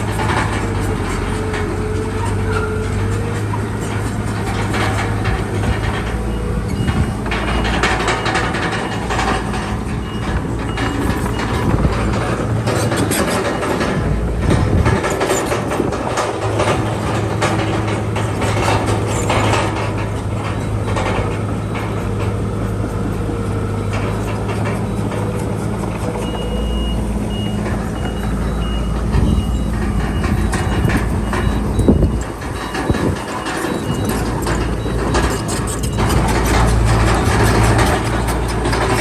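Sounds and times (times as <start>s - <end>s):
heavy diesel machinery running: 0.0s - 39.0s
knocks of metal and soil: 0.0s - 39.0s
reversing alarm beeps: 5.2s - 15.5s, 19.4s - 39.0s.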